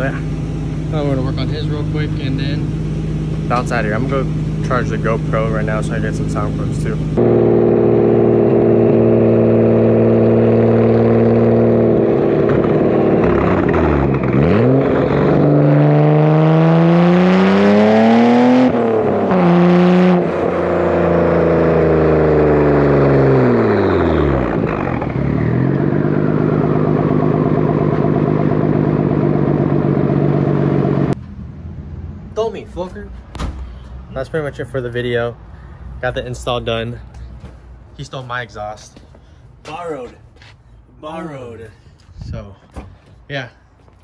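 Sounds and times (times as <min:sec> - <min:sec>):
car engine revving: 0:00.0 - 0:32.6.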